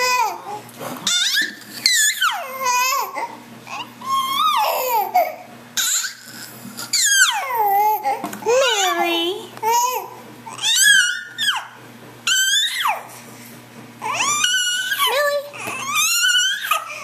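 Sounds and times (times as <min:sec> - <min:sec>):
baby squealing: 0:01.0 - 0:08.1, 0:09.7 - 0:13.1, 0:14.0 - 0:17.0.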